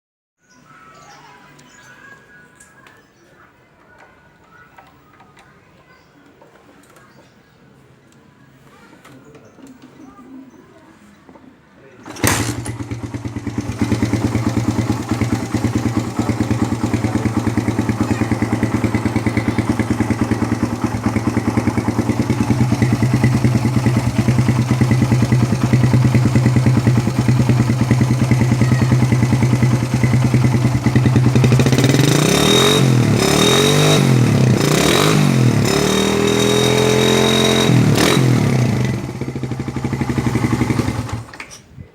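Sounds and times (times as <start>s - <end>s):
motorcycle engine idling and revving: 12.1s - 41.4s.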